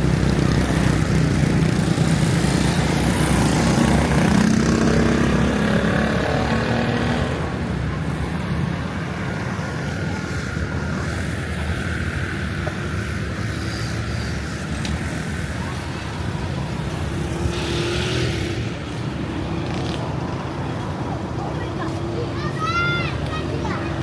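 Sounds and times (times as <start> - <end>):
vehicle engine running close: 0.0 - 22.3
street traffic: 0.0 - 24.0.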